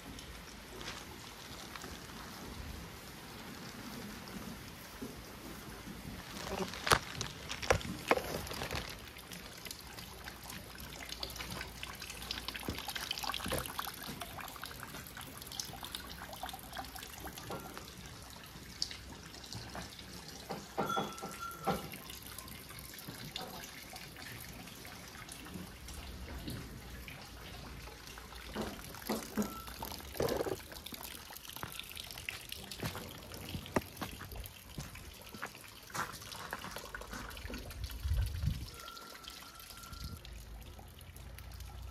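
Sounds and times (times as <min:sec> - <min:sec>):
rain falling: 0:00.0 - 0:20.0
water dripping and trickling: 0:00.0 - 0:41.9.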